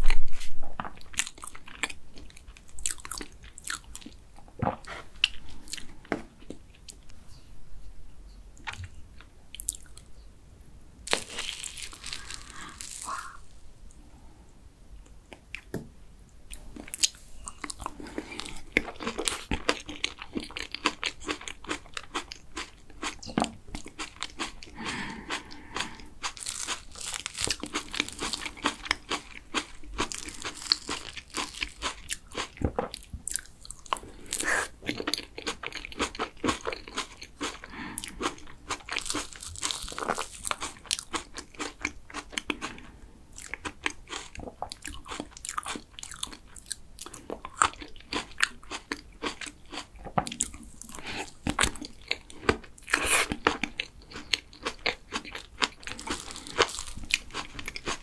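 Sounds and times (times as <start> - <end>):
chewing and wet smacking: 43.4 - 58.0.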